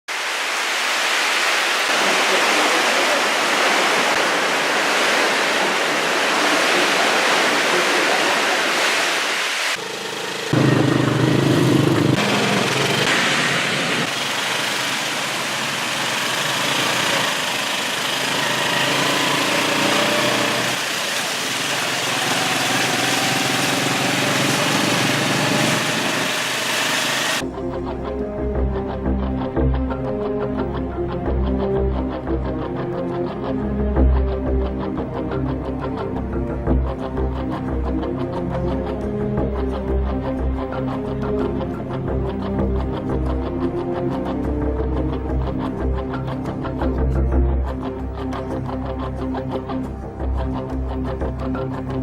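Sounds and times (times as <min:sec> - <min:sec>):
heavy rain: 0:00.1 - 0:27.4.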